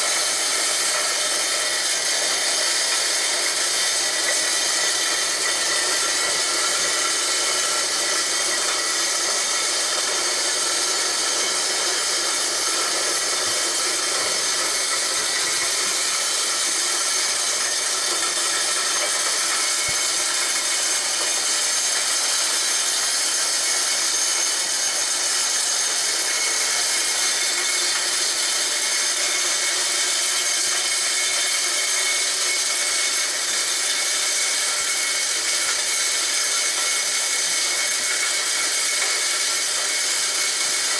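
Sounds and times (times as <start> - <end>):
grinder high whine: 0.0 - 40.9
grinding noise: 3.9 - 21.5.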